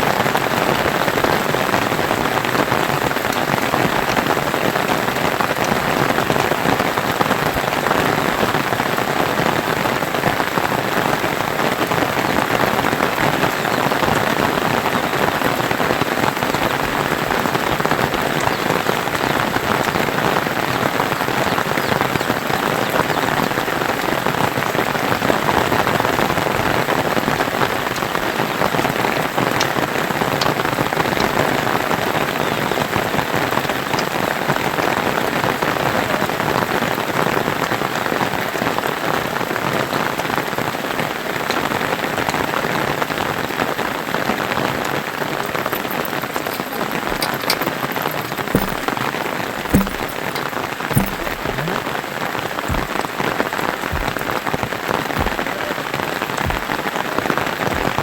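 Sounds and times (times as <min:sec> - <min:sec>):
rain falling: 0:00.0 - 0:58.0
drips ticking: 0:45.2 - 0:58.0.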